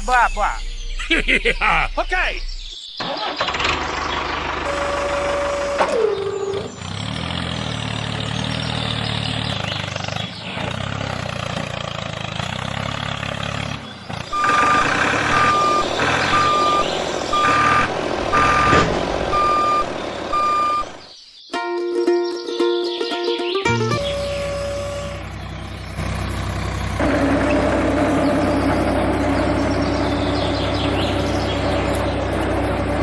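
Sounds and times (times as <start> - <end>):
vehicle engine running: 3.1 - 21.2, 23.7 - 33.0
reversing alarm beeping: 4.6 - 6.7, 14.3 - 21.0, 23.9 - 25.4.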